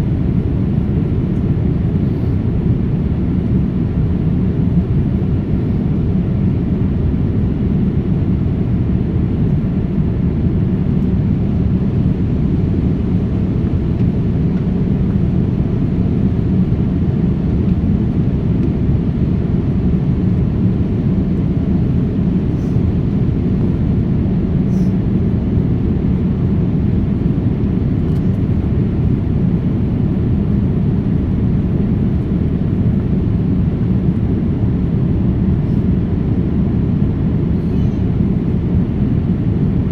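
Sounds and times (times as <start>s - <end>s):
jet engine and airflow rumble: 0.0s - 39.9s.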